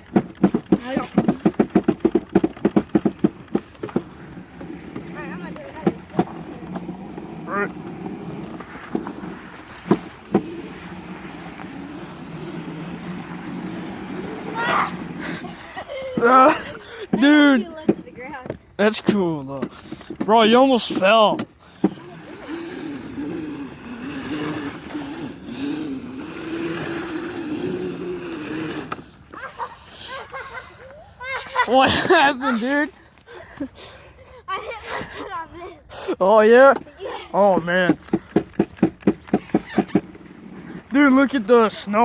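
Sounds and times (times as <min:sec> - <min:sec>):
sharp knocks: 0:00.0 - 0:04.1
electric motor humming: 0:00.0 - 0:17.8, 0:21.1 - 0:29.3.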